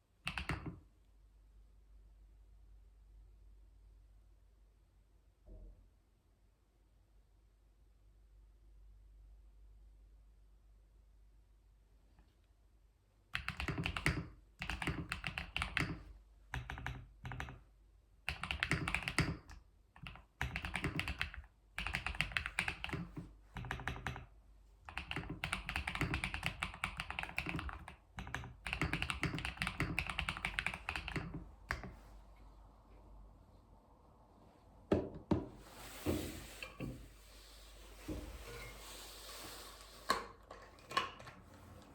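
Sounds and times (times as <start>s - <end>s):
typing on computer keyboard: 0.2s - 0.8s, 13.3s - 17.7s, 18.3s - 24.3s, 24.9s - 32.0s.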